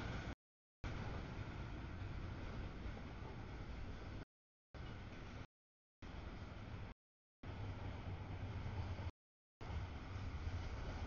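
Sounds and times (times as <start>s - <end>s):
wheel and track hiss: 6.1s - 11.0s.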